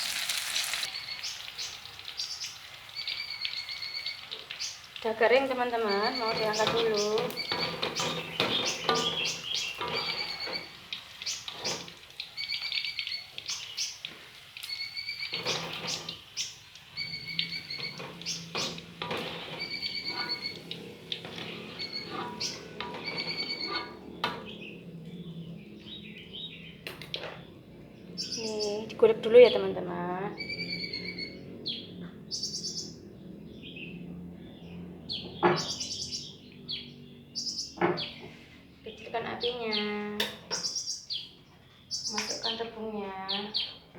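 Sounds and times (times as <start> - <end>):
birds chirping: 0.0 - 43.9
high chirping call: 5.8 - 10.7, 19.6 - 20.7.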